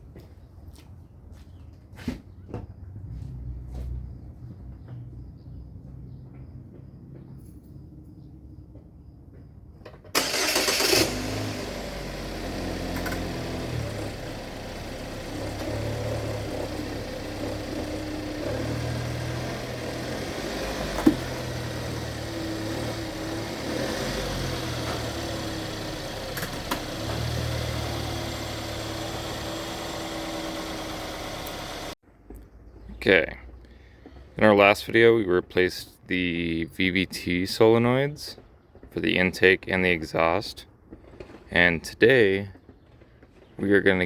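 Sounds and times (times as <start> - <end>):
car engine cranking and idling: 10.0 - 32.0.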